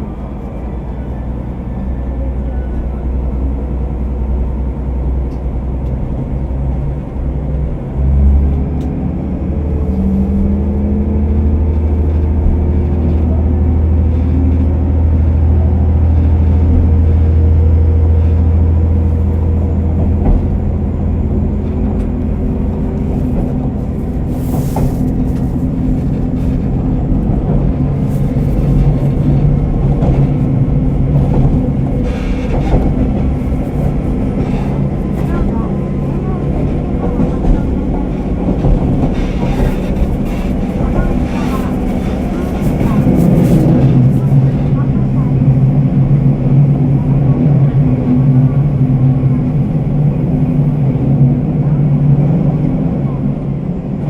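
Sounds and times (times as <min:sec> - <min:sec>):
muffled diesel railcar engine: 0:00.0 - 0:54.0.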